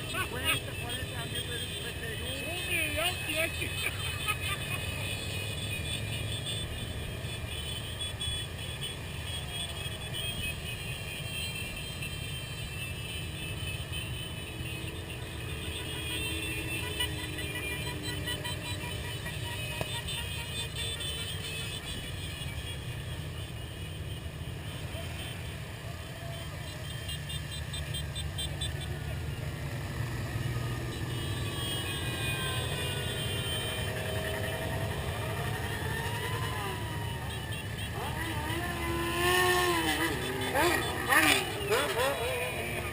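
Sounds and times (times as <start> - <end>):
many motorcycle engines rumbling: 0.0 - 42.9.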